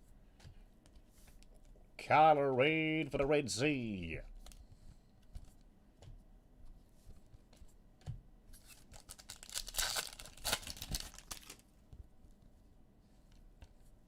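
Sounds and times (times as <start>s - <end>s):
foil wrapper tearing and crinkling: 8.7s - 11.6s.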